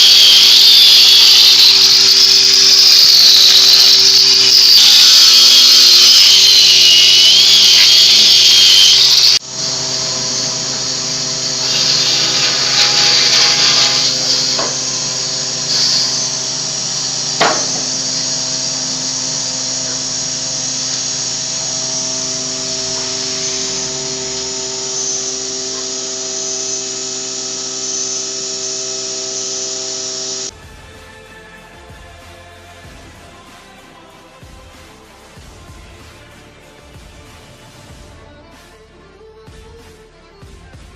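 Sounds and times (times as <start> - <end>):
power tool high whir: 0.0 - 30.5
steady motor hum: 0.0 - 30.5
knocks: 17.4 - 17.9.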